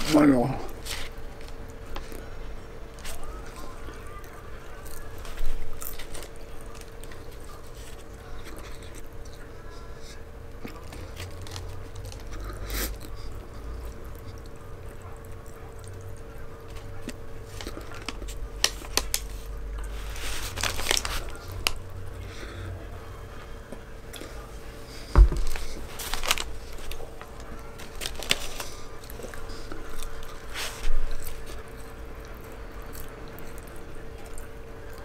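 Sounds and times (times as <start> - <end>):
person chewing food: 0.0 - 35.0
paper bag crinkling: 16.9 - 21.8, 25.4 - 31.7.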